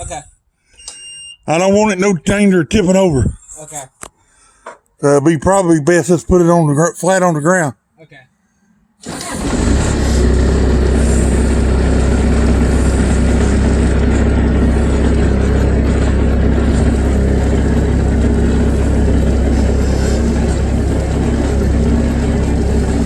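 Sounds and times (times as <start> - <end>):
diesel engine running: 9.0 - 23.0.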